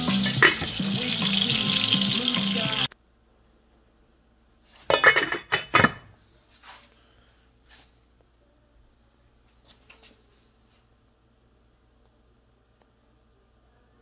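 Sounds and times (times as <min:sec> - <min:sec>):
background music: 0:00.0 - 0:02.9
food sizzling in a pan: 0:00.0 - 0:02.9.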